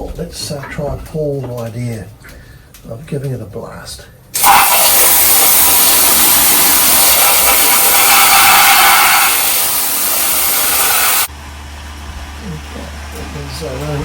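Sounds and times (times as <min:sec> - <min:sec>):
high-pressure jet hissing: 0:04.4 - 0:11.3.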